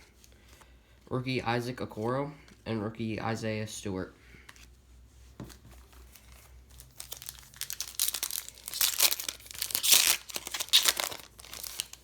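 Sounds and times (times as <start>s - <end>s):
wrapper tearing and crinkling: 6.2s - 12.0s.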